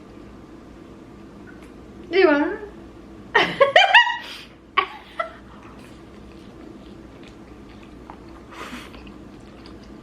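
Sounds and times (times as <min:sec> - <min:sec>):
person chewing: 0:05.4 - 0:10.0.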